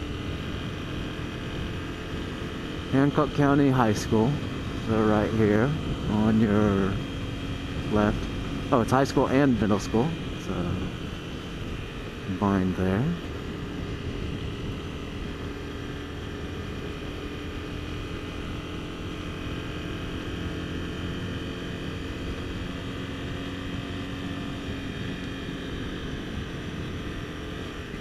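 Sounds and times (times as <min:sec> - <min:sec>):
motorcycle engine cruising: 0:00.0 - 0:28.0
road and wind noise: 0:00.0 - 0:28.0.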